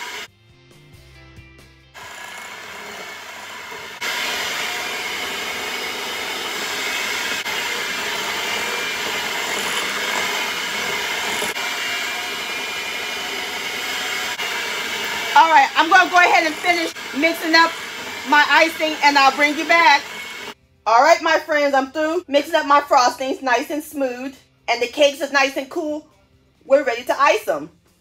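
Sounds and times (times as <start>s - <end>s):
electric hand mixer running: 0.0s - 0.3s, 2.0s - 20.6s.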